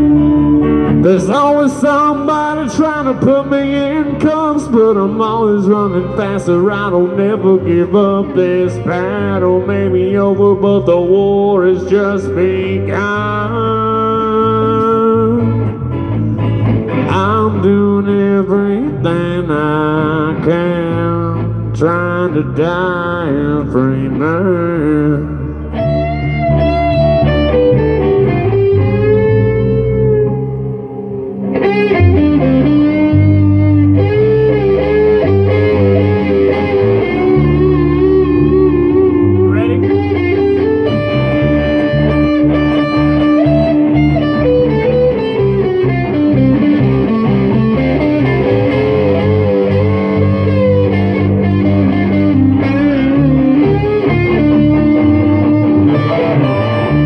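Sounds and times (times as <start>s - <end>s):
band backing: 0.0s - 57.0s
electric guitar lead: 0.0s - 57.0s.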